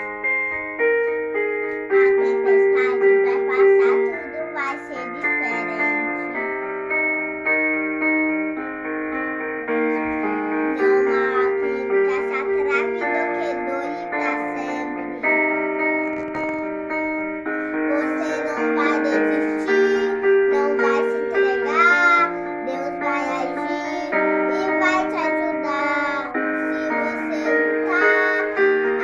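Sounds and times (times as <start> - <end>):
keyboard chords: 0.0 - 29.0
child singing: 1.7 - 6.6, 10.2 - 17.0, 17.6 - 29.0.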